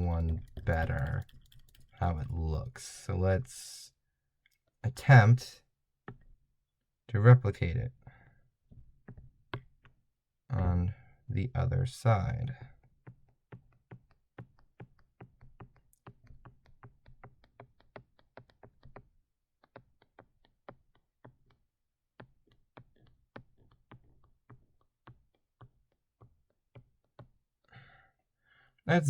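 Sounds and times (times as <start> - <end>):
clicks and taps on drawing tablet: 0.0 - 2.8, 6.0 - 6.4, 8.7 - 10.0, 12.6 - 27.5.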